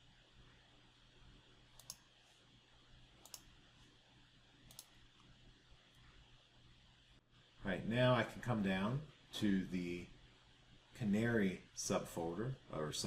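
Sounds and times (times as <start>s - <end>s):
faint room hum: 0.0s - 13.0s
computer mouse clicking: 1.8s - 2.1s, 3.2s - 3.5s, 4.7s - 5.3s.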